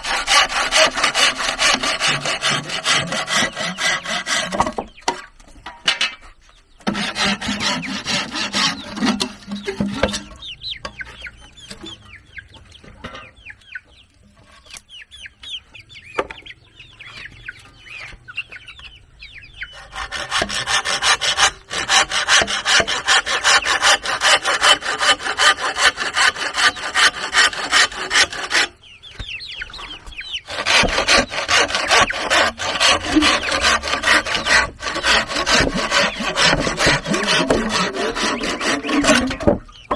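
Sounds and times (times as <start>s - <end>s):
hand saw cutting wood: 0.0s - 5.3s, 6.8s - 10.4s, 19.8s - 28.8s, 30.5s - 39.9s
chickens clucking: 0.0s - 39.9s
small birds chirping: 4.0s - 6.9s, 7.6s - 20.1s, 28.0s - 35.3s, 38.3s - 39.9s.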